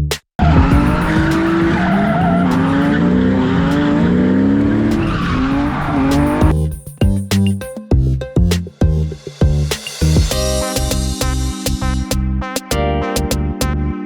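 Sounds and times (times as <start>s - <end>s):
tyres squealing and skidding: 0.4s - 6.5s
car engine revving: 0.4s - 6.6s.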